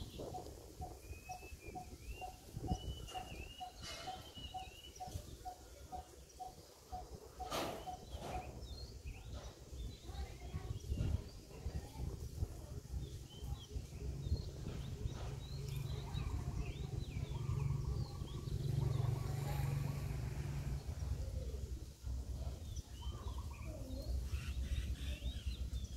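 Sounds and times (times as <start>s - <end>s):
small birds chirping: 0.0s - 25.9s
wind rumble on microphone: 0.0s - 25.9s.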